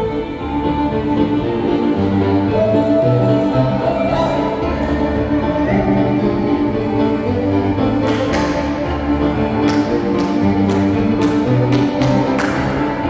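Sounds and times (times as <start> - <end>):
fiddle playing reel tune: 0.0 - 13.0.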